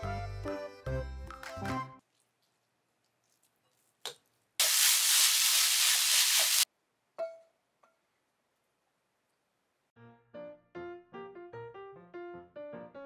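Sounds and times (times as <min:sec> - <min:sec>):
rice sizzling in hot pan: 0:04.6 - 0:06.7.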